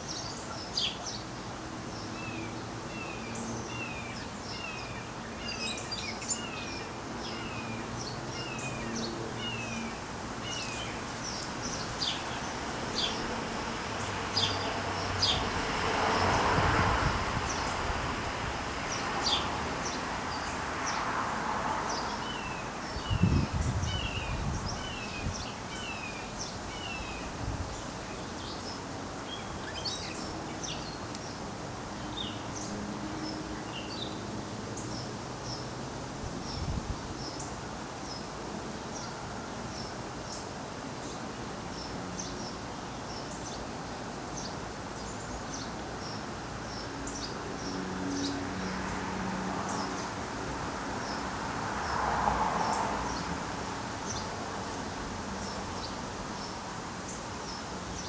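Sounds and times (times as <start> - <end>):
outdoor background noise: 0.0 - 58.0.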